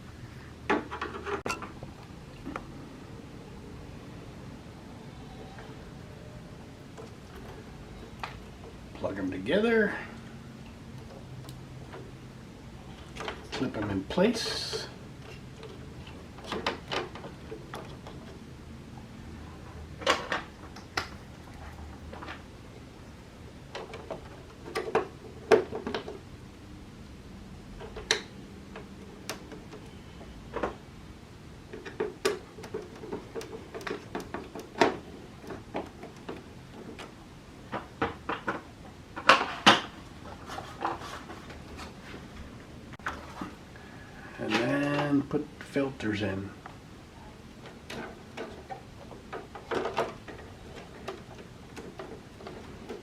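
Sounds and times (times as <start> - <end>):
plastic parts clicking and knocking: 14.7 - 18.4, 23.6 - 26.2, 31.6 - 40.0, 47.6 - 53.0.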